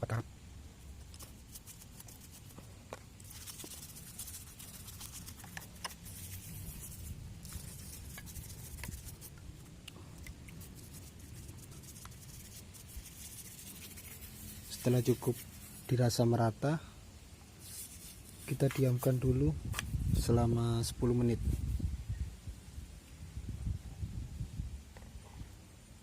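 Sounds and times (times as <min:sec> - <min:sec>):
brush scrubbing metal: 0:01.0 - 0:09.7, 0:10.4 - 0:16.1, 0:17.6 - 0:19.4.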